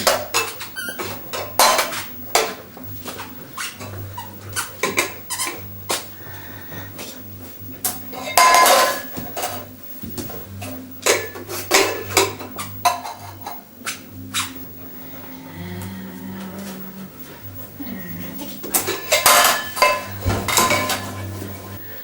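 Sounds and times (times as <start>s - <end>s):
cans clanking and rattling: 0.0s - 2.6s, 7.9s - 9.7s, 18.7s - 21.3s
metal cans crashing: 18.8s - 21.2s.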